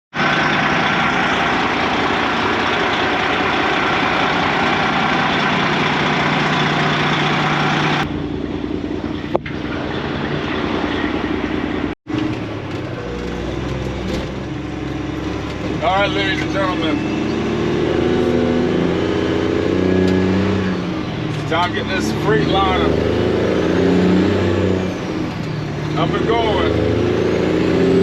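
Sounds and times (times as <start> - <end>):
diesel truck engine running: 0.1 - 28.0.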